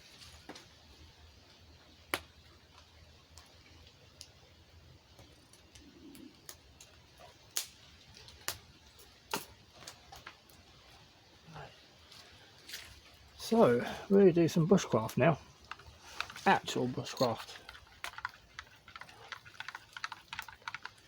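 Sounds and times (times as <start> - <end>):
faint steady background noise: 0.0 - 21.0
sharp clicks and taps: 15.6 - 21.0.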